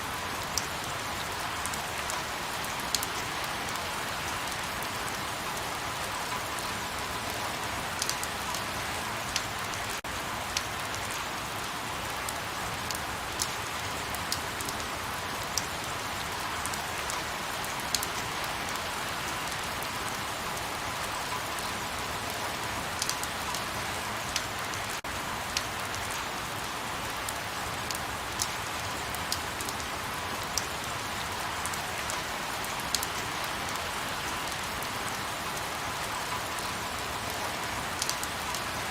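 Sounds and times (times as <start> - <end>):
raindrops ticking: 8.0 - 8.7, 12.8 - 38.8.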